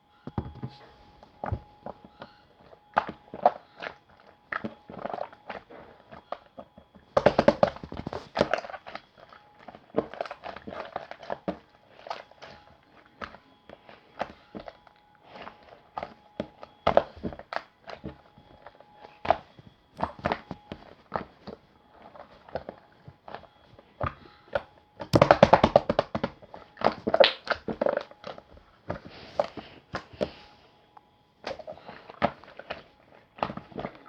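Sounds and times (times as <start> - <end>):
objects being handled: 0.3 - 5.4.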